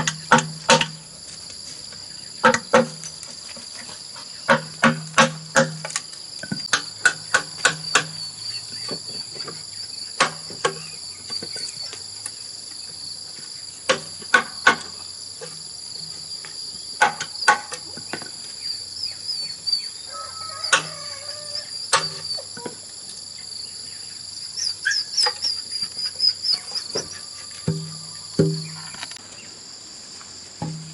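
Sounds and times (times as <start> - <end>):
sharp knocks: 0.0 - 1.0, 2.4 - 3.0, 4.5 - 8.2, 27.7 - 29.0, 30.6 - 30.9
crickets chirring: 0.0 - 30.9.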